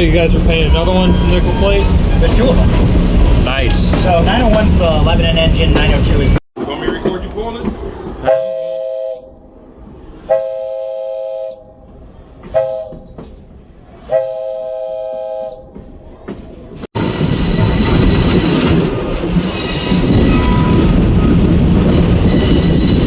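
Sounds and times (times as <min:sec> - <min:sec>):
rail clatter: 0:00.0 - 0:08.6, 0:11.7 - 0:14.3, 0:15.6 - 0:23.0
train running rumble: 0:00.0 - 0:23.0
locomotive air horn: 0:08.3 - 0:09.4, 0:10.1 - 0:11.8, 0:12.5 - 0:13.2, 0:14.0 - 0:15.8.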